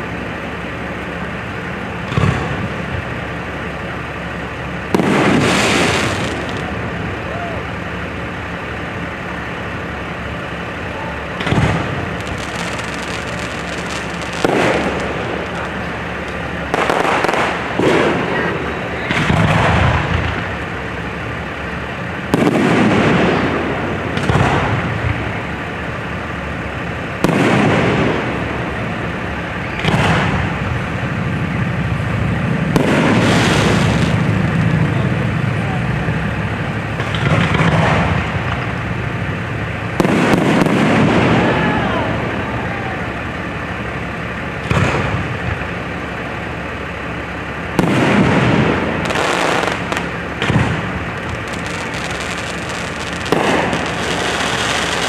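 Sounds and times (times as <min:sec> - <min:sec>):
fireworks crackling: 0:00.0 - 0:55.0
firework shells bursting: 0:00.4 - 0:25.1, 0:32.6 - 0:34.8, 0:36.9 - 0:41.6, 0:44.2 - 0:55.0.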